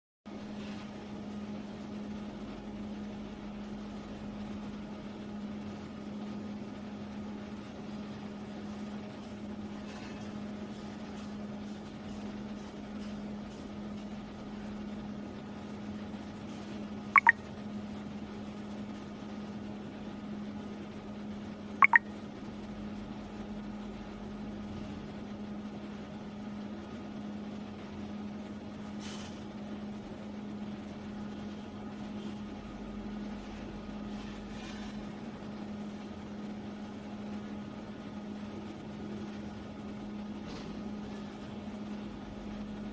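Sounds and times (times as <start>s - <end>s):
low hum and hiss: 0.3s - 42.9s
short high chirps: 17.2s - 17.4s, 21.8s - 22.0s.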